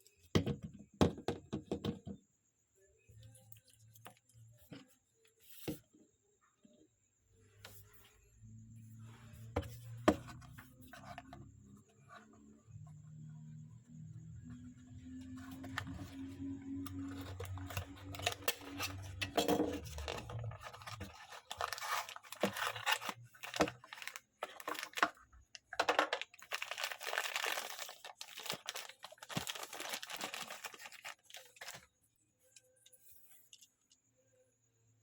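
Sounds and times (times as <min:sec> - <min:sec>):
packaging torn and crinkled: 0:20.0 - 0:25.2, 0:26.0 - 0:31.8.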